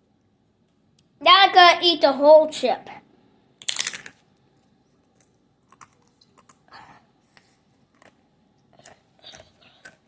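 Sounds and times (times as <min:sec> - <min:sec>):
chip crunching and chewing: 0:05.2 - 0:06.7, 0:07.8 - 0:10.0.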